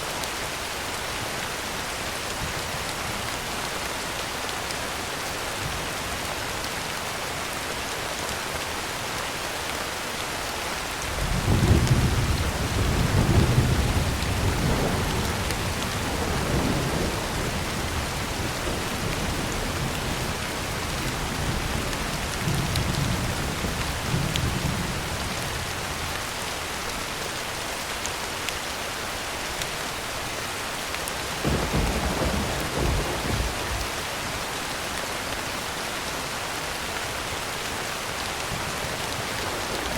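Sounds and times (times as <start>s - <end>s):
heavy rain on a tin roof: 0.0s - 39.9s
thunder rumbling: 11.2s - 25.2s, 31.4s - 34.2s.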